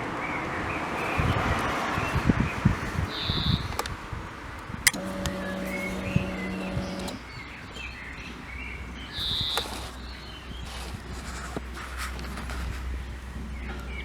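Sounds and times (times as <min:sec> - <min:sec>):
birds chirping: 0:02.1 - 0:03.9, 0:04.8 - 0:11.4.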